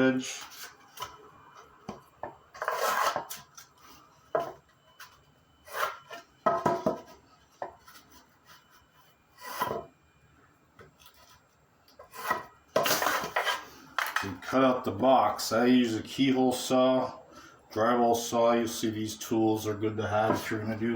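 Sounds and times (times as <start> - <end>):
scraping across drywall: 2.6 - 4.0, 5.0 - 6.3, 7.7 - 9.9, 11.0 - 13.7.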